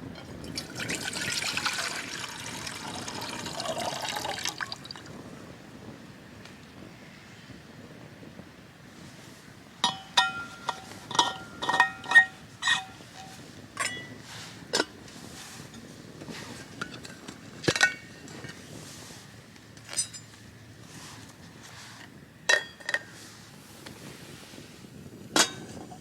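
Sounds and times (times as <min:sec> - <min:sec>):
metal cookware clinking: 0:09.8 - 0:14.2, 0:22.5 - 0:23.1, 0:25.4 - 0:25.8.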